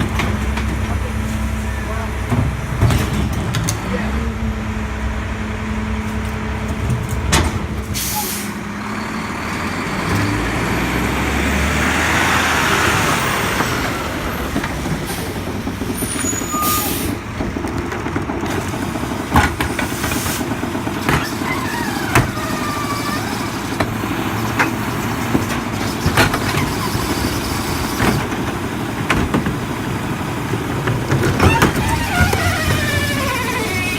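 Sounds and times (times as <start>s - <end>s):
garbage truck diesel engine running: 0.0s - 33.9s
air brake hiss: 8.0s - 8.6s, 16.4s - 17.2s.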